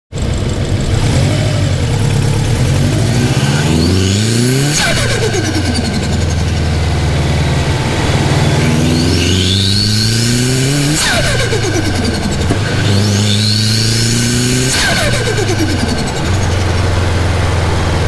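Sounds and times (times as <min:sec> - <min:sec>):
car engine revving: 0:00.2 - 0:18.0
compressor surge flutter: 0:00.2 - 0:18.0
turbo whistle: 0:02.9 - 0:17.0.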